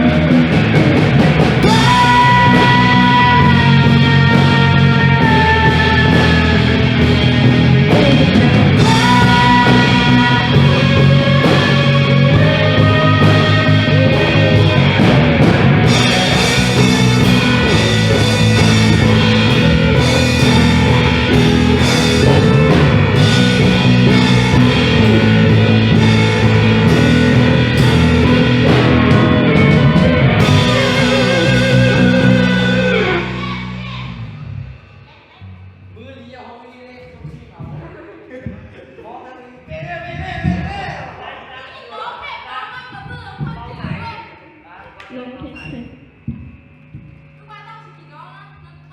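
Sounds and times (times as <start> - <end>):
rock band playing: 0.0 - 35.1.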